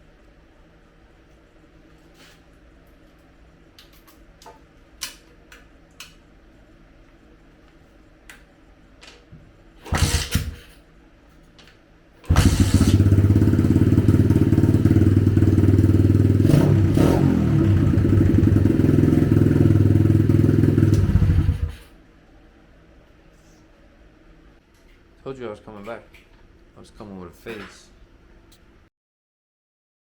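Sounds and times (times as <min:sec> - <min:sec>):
dirt-bike engine running: 0:09.9 - 0:10.6, 0:12.3 - 0:21.9.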